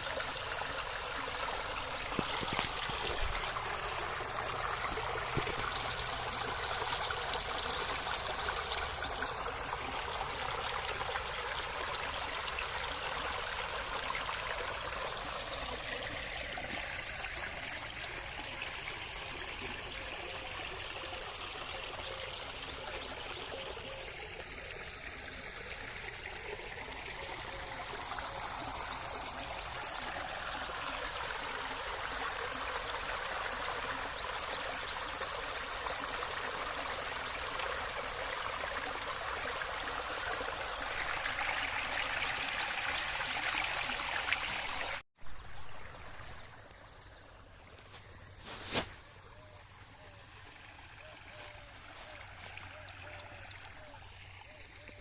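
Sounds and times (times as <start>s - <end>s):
water flowing: 0.0s - 55.0s.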